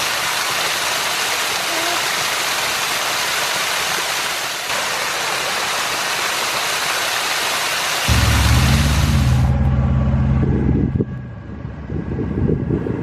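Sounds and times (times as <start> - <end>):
waterfall rushing: 0.0 - 9.6
low vehicle engine hum: 8.1 - 13.0.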